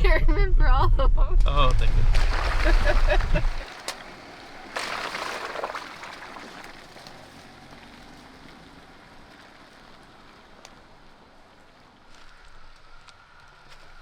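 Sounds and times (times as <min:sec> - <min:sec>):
vehicle running hum: 0:00.0 - 0:14.0
tyres rushing on dirt: 0:01.6 - 0:14.0.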